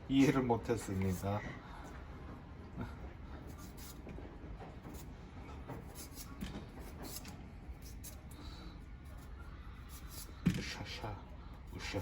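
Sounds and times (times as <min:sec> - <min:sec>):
knife scraping radish: 0:03.5 - 0:04.0, 0:05.8 - 0:11.0, 0:11.6 - 0:12.0.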